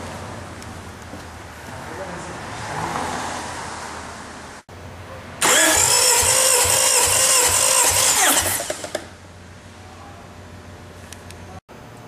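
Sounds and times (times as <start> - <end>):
starter motor cranking: 5.4 - 9.1.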